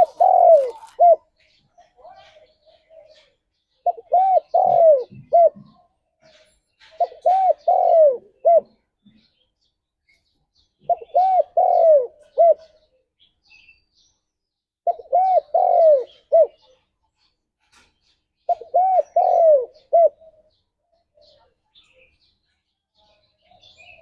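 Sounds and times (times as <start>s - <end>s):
dove cooing: 0.0s - 1.4s, 2.2s - 5.9s, 6.9s - 8.8s, 10.8s - 12.9s, 14.8s - 16.7s, 18.5s - 20.6s.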